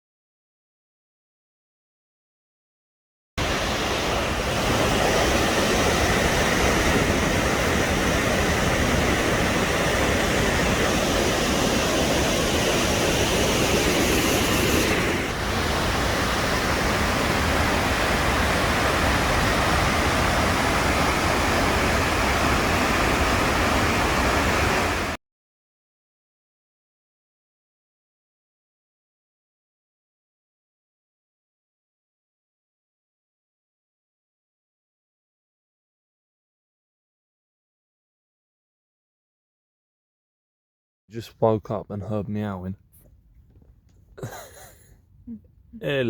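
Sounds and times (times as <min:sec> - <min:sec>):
waterfall rushing: 0:03.4 - 0:25.2.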